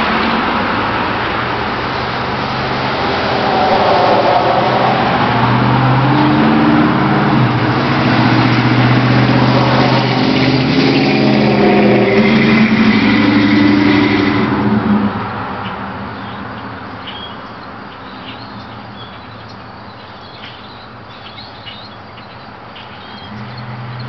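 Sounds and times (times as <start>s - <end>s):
pickup truck driving past: 0.0s - 15.8s, 21.3s - 24.0s.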